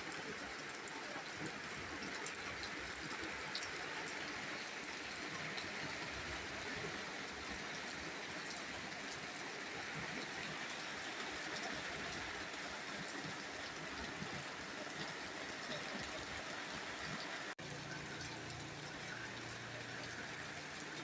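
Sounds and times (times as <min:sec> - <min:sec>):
steady rain hiss: 0:00.0 - 0:21.0
raindrops ticking: 0:16.9 - 0:21.0.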